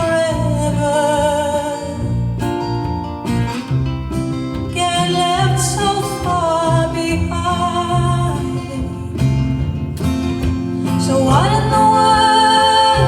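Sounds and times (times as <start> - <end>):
bass line: 0.0 - 13.0
strummed acoustic guitar: 0.0 - 13.0
person singing: 10.9 - 13.0.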